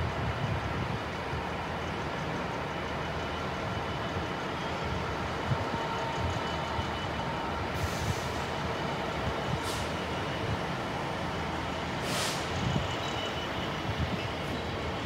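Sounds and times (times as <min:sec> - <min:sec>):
freight train rumbling: 0:00.0 - 0:15.0
short hisses: 0:09.6 - 0:10.0, 0:12.0 - 0:12.5.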